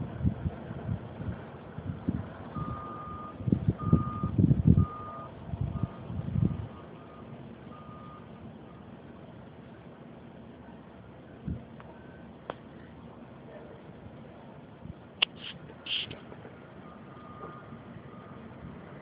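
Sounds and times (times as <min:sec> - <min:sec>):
wind buffeting microphone: 0:00.0 - 0:06.7
vehicle reversing alarm beeping: 0:02.4 - 0:09.0, 0:10.9 - 0:12.9, 0:16.8 - 0:19.0.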